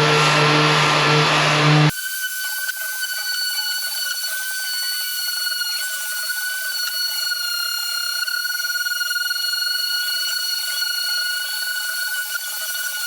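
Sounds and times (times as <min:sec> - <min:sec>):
rattling buzz: 0:00.0 - 0:01.9
small power tool whining: 0:00.0 - 0:13.0.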